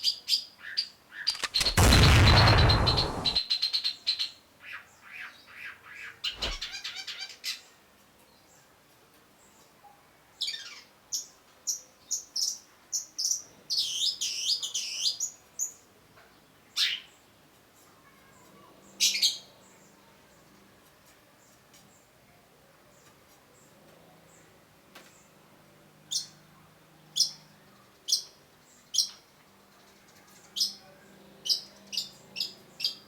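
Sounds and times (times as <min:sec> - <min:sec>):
low thump: 0:01.4 - 0:03.4.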